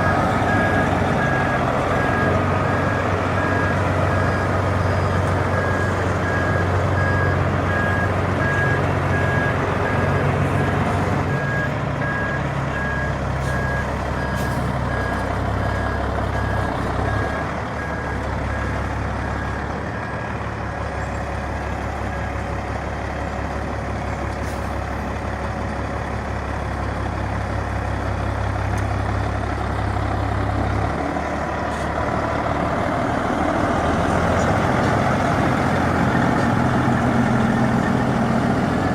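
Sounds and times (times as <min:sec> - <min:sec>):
reversing alarm beeping: 0:00.0 - 0:20.4
truck diesel engine running: 0:00.0 - 0:38.9.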